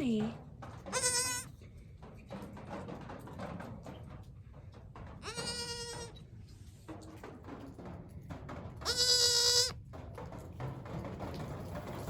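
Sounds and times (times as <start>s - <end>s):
goat bleating: 0.9s - 1.5s, 5.2s - 6.2s, 8.8s - 9.8s.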